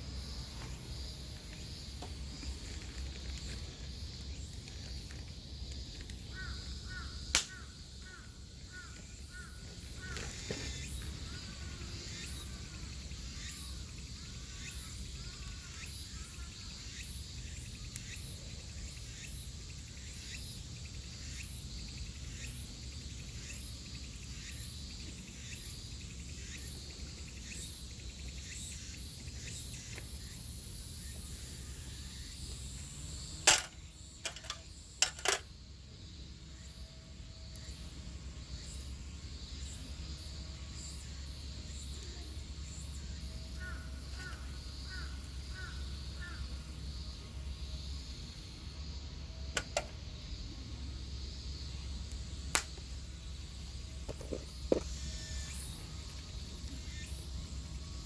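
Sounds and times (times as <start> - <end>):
insects chirping: 0.0 - 58.0
sharp clicks: 7.3 - 7.6, 49.6 - 50.0, 52.6 - 52.8.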